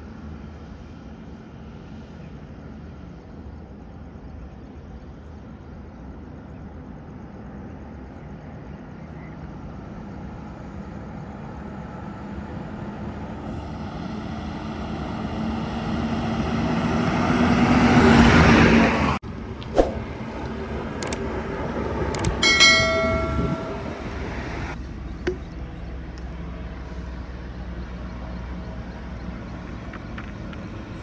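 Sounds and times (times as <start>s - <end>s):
diesel truck engine drone: 11.6s - 31.0s.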